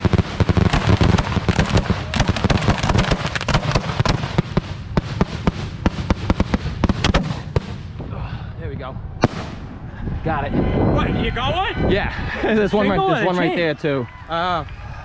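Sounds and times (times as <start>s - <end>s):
fireworks bangs and crackles: 0.0s - 8.1s, 9.2s - 9.7s.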